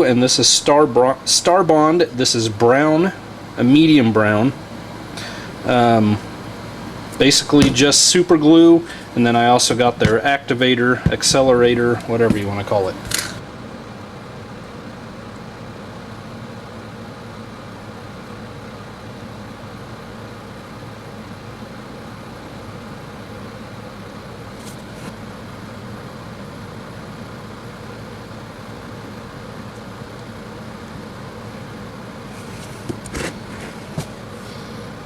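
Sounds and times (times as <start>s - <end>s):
low hum and hiss: 0.0s - 35.0s.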